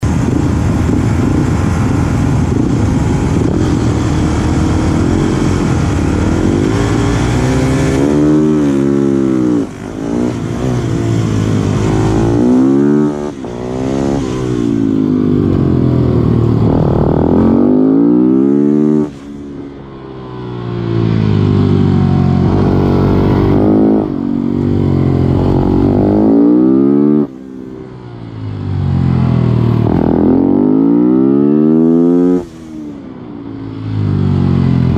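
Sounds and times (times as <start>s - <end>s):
motorcycle engine at full throttle: 0.0s - 34.9s.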